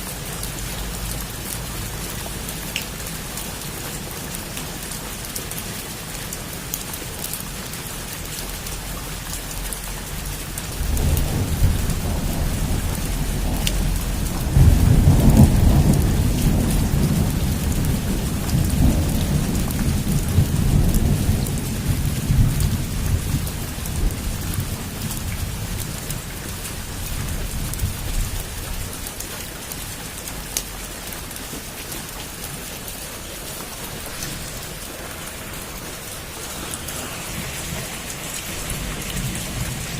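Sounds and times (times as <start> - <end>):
heavy rain falling: 0.0 - 39.9
rolling thunder: 10.2 - 28.8, 33.4 - 39.9.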